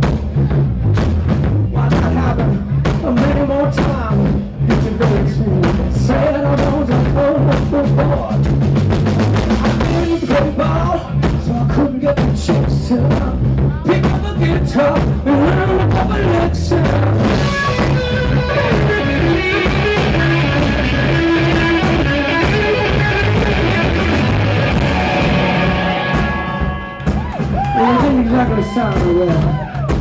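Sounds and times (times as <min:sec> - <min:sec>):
drum kit: 0:00.0 - 0:30.0
rock band playing live: 0:00.0 - 0:30.0
electric guitar: 0:12.5 - 0:30.0
person singing: 0:27.6 - 0:29.7.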